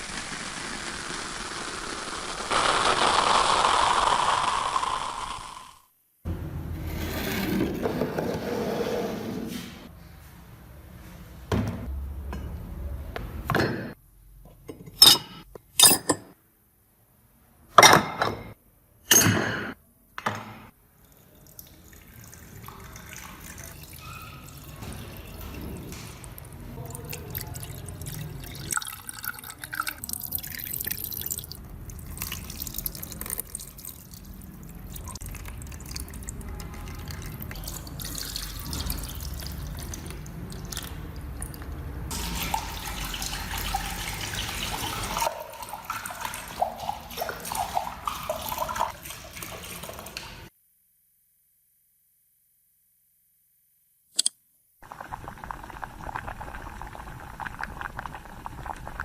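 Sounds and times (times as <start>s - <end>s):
water dripping and trickling: 21.0s - 50.5s.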